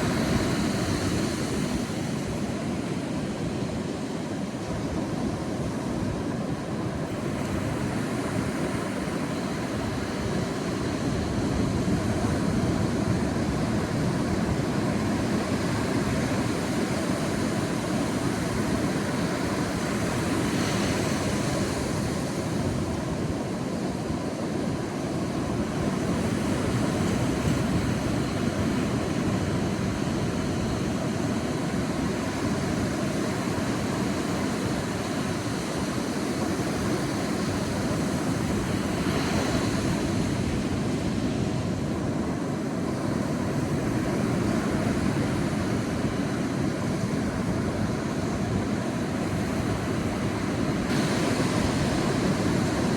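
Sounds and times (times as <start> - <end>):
sea surf washing on beach: 0.0 - 52.9.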